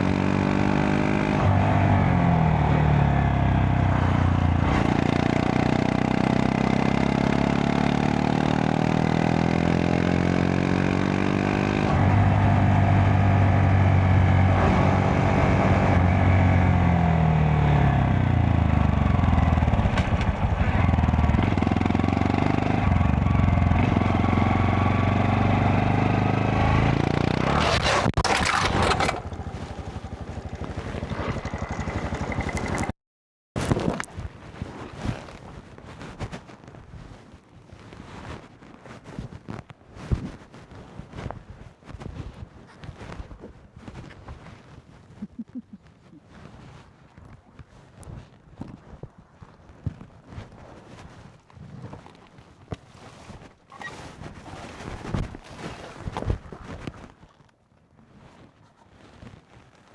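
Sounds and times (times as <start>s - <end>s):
motorcycle engine running: 0.0s - 33.0s
wind noise on microphone: 33.6s - 57.3s.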